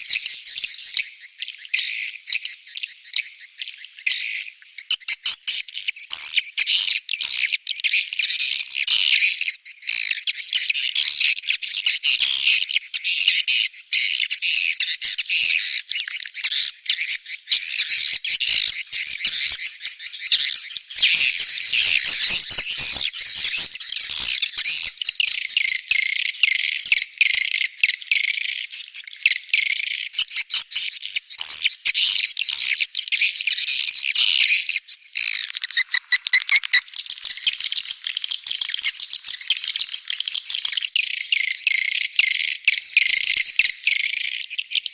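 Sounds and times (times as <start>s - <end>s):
swiftlets twittering and chirping: 0.0s - 1.9s, 14.1s - 30.0s, 35.2s - 44.9s.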